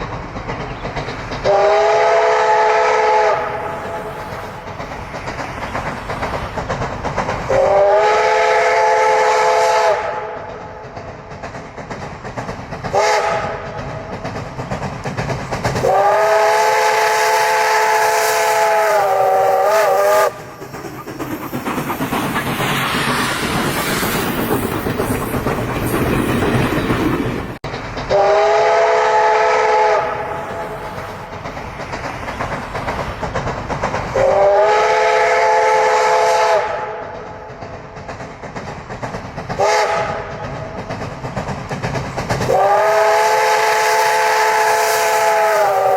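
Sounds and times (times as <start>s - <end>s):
train running noise: 0.0s - 45.9s
steam locomotive whistle blasts: 1.5s - 4.1s, 7.5s - 10.5s, 12.9s - 13.7s, 15.8s - 20.4s, 28.1s - 30.8s, 34.2s - 37.1s, 39.6s - 40.3s, 42.5s - 45.9s.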